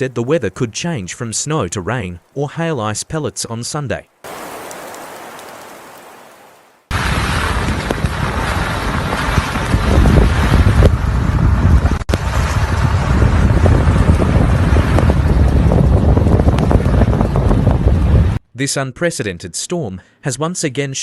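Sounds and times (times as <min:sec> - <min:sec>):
strong wind buffeting microphone: 0:04.3 - 0:18.4.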